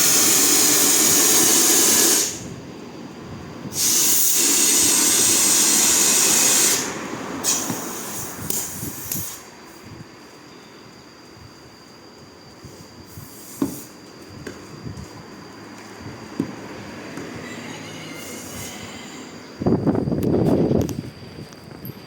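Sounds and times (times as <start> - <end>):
compressed air hissing: 0.0 - 2.6, 3.6 - 10.0, 12.6 - 15.2, 17.2 - 20.0.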